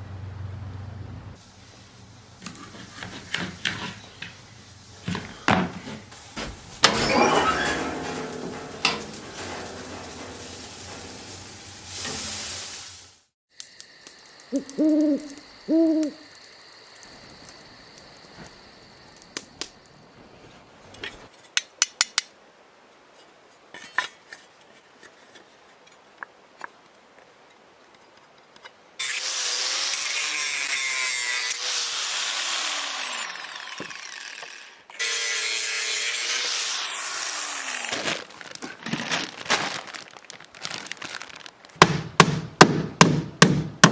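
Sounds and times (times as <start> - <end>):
low hoots: 14.5 - 16.3
power tool running: 29.0 - 38.2.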